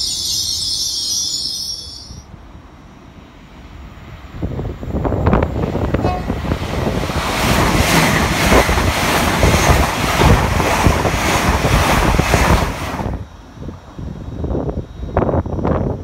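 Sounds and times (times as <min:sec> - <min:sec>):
train passing at speed: 0:00.0 - 0:16.0.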